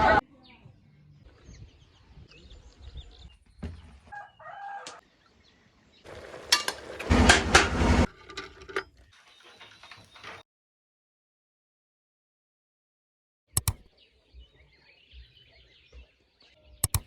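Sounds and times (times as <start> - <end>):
rooster crowing: 4.1 - 5.0
loud clattering knocks: 6.3 - 8.8.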